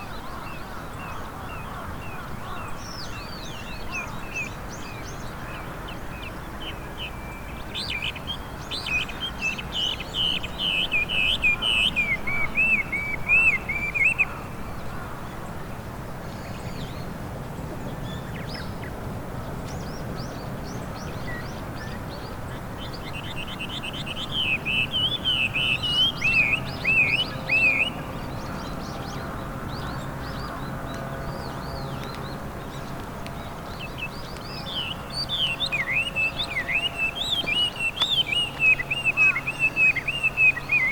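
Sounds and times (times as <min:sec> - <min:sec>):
bird singing whistled song: 0:23.2 - 0:28.0, 0:33.9 - 0:40.9.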